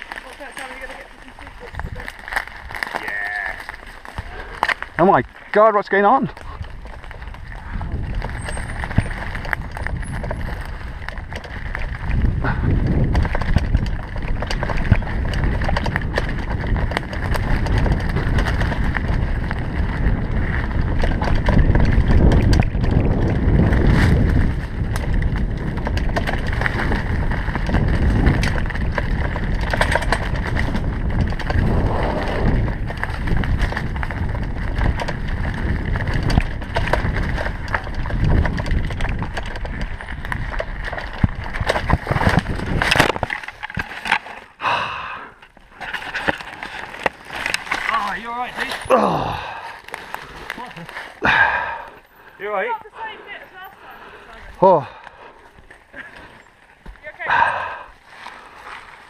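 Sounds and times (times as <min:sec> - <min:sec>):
bicycle frame rattling: 0:00.0 - 0:59.0
bicycle tyres rumbling on trail: 0:00.0 - 0:59.0
wind buffeting microphone: 0:00.8 - 0:02.9, 0:03.5 - 0:43.8.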